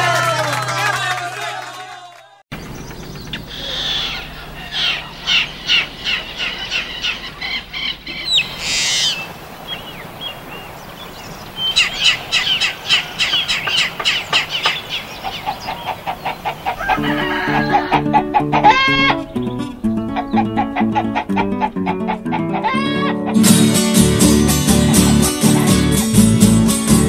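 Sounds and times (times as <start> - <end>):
birds chirping: 2.5 - 26.3.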